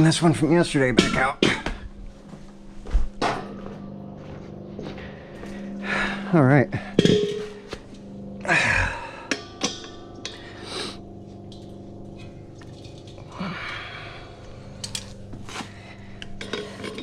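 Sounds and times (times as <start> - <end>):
metal tank clanking: 0.0 - 1.8, 3.2 - 3.8, 6.6 - 13.4, 14.3 - 17.0
steady hum: 0.0 - 17.0
gas hiss: 10.2 - 11.0.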